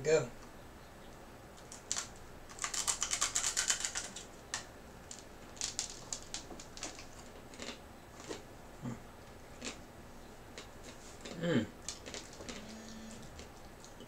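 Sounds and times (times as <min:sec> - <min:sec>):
chewing crunchy snack: 0:01.6 - 0:08.5, 0:09.2 - 0:09.9, 0:10.5 - 0:14.0.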